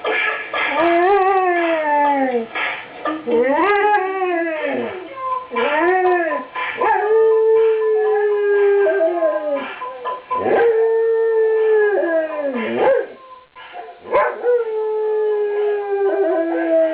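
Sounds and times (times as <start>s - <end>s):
dog howling: 3.3s - 13.3s, 14.1s - 16.9s.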